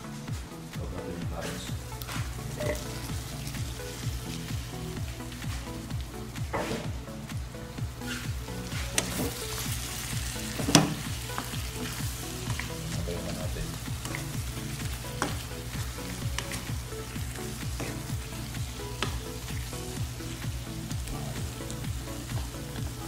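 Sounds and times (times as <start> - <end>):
stew sizzling in a frying pan: 1.8 - 6.8, 8.0 - 23.0
utensil clicking against pan: 8.9 - 9.3.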